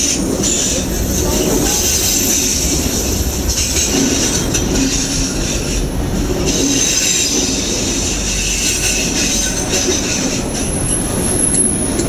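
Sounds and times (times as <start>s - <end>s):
train wheels rumbling on rails: 0.0s - 12.0s
high-pitched wheel squeal: 10.2s - 12.0s.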